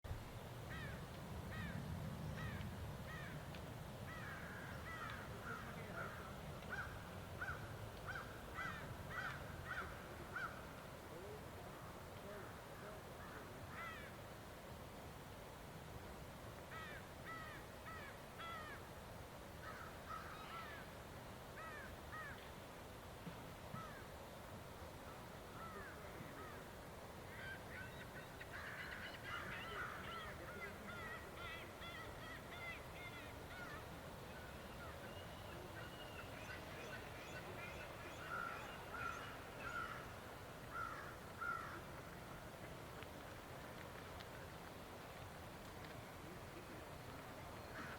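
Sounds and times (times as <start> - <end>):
birds calling: 4.1 - 10.8, 27.3 - 42.4, 47.3 - 47.9.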